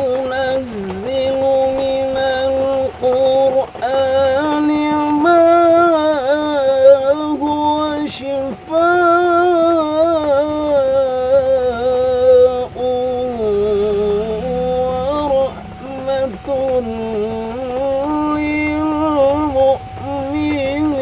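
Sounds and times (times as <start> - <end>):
person singing ornamented notes: 0.0 - 21.0.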